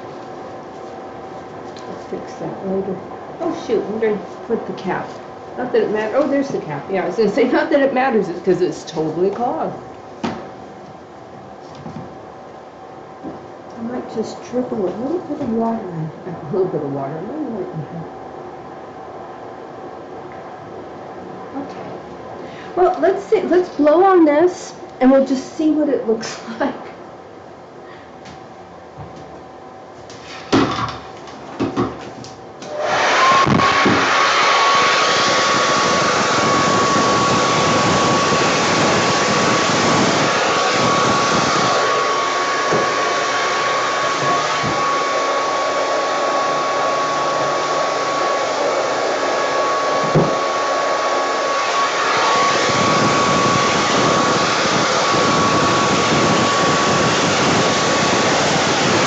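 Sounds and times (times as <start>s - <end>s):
hair dryer running: 32.6s - 59.0s.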